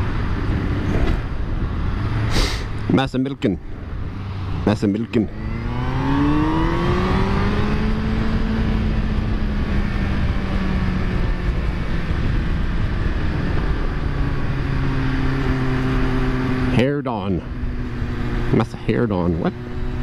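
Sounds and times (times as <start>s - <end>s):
heavy wind rush: 0.0s - 20.0s.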